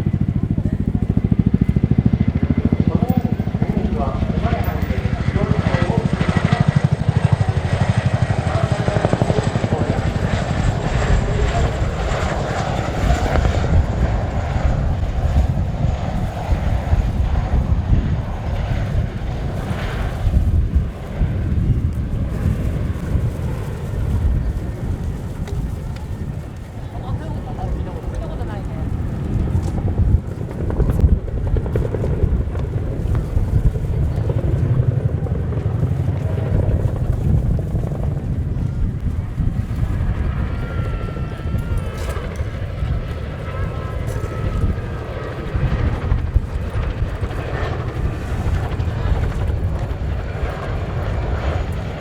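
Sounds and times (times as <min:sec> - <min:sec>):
helicopter flying overhead: 0:00.0 - 0:52.0.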